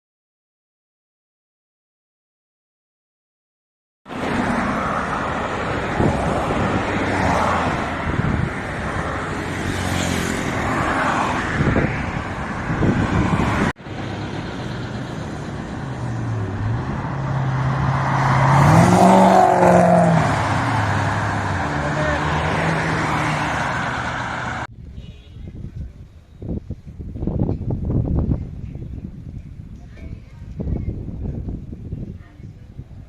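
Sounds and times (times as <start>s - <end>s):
vehicle engine revving: 4.1s - 24.7s
vehicle engines running: 4.1s - 24.7s
road noise: 4.1s - 33.0s.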